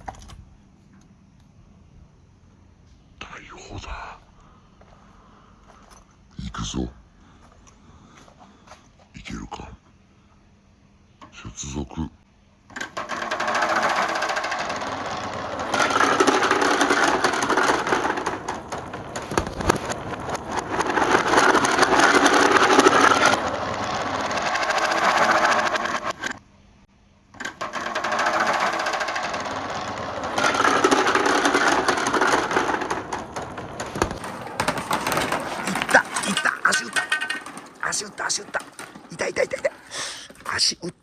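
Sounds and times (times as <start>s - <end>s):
marbles rattling through pipe: 12.8s - 26.3s, 27.4s - 40.9s.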